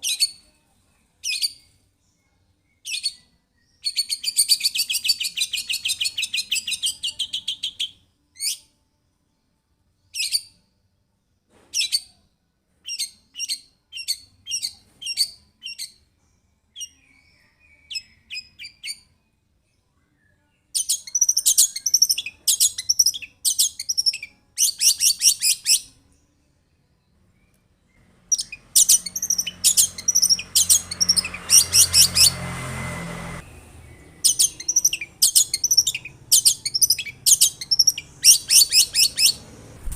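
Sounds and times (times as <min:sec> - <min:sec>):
bird singing high-pitched notes: 0:02.7 - 0:08.7, 0:10.0 - 0:10.6, 0:16.8 - 0:19.1, 0:20.3 - 0:26.0, 0:27.4 - 0:32.5, 0:33.4 - 0:39.4.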